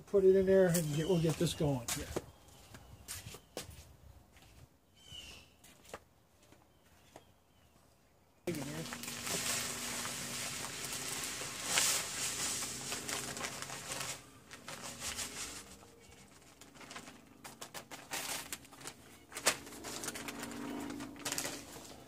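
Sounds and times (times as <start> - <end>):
bag crinkling: 8.5 - 22.0
granules pouring into hopper: 8.8 - 15.8.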